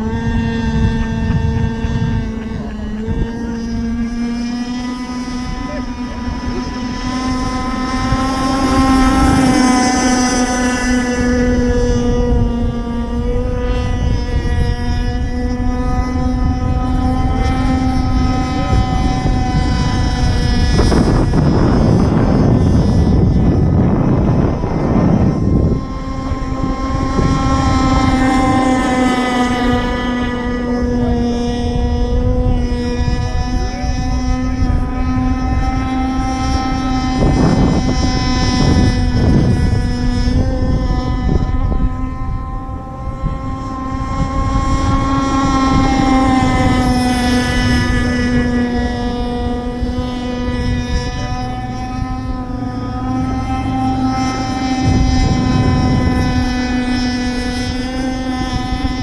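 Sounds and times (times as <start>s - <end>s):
two-stroke boat engine high note: 0.0s - 59.0s
rough rushing noise: 37.1s - 59.0s.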